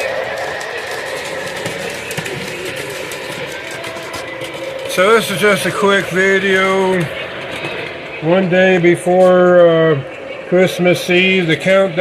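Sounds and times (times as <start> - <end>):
wheels clicking on rails: 0.0 - 9.6
model train running: 0.0 - 12.0.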